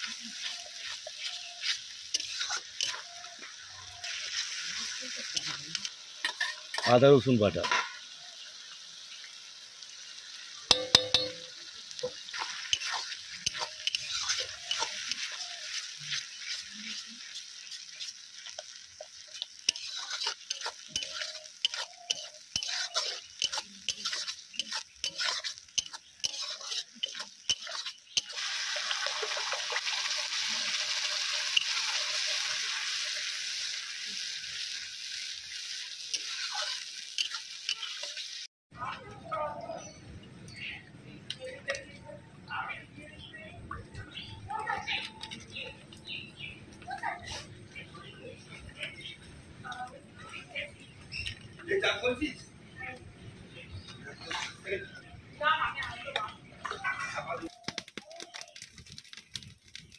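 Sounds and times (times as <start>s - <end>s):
spatula scraping pan: 0.0s - 3.3s, 4.0s - 6.9s, 12.2s - 32.2s, 36.1s - 38.2s
spice paste sizzling in oil: 0.0s - 38.5s, 44.1s - 59.9s
spatula clinking on pan: 10.7s - 11.6s.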